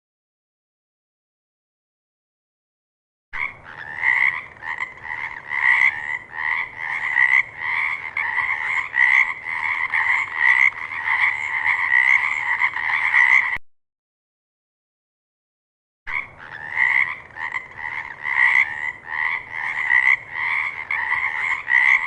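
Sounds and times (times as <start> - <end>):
frog croaking: 3.4 - 13.6, 16.1 - 22.0.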